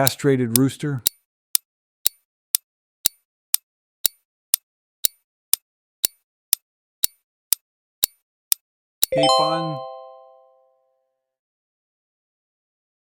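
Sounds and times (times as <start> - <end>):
countdown timer ticking: 0.0 - 3.2, 9.0 - 10.4.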